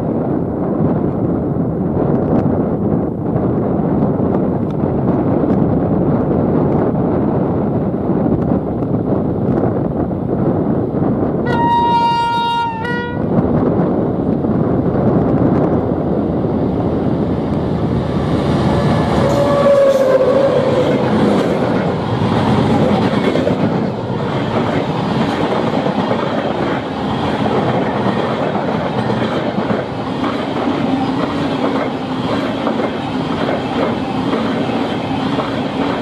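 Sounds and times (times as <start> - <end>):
train wheels rumbling on rail: 0.0 - 36.0
clickety-clack over rail joints: 3.4 - 10.1, 18.7 - 36.0.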